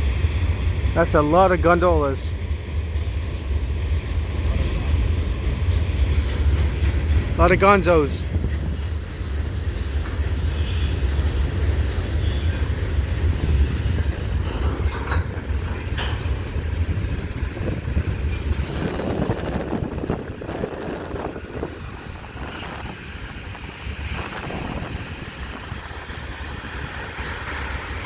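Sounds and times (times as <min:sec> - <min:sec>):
freight train rumbling past: 0:00.0 - 0:28.0
high wheel squeal: 0:10.4 - 0:15.0, 0:18.3 - 0:19.8.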